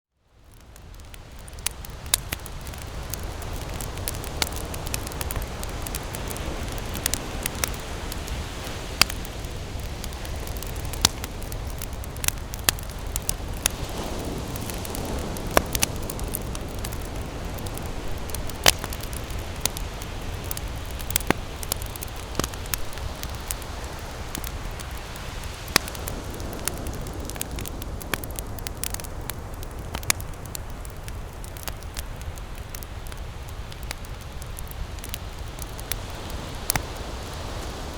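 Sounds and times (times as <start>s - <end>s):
campfire crackling and popping: 0.3s - 37.9s.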